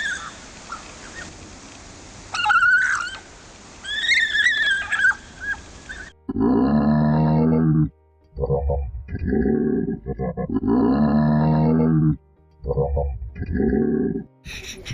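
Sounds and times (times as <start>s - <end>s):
animal giving high-pitched wavering cries: 2.3s - 6.7s.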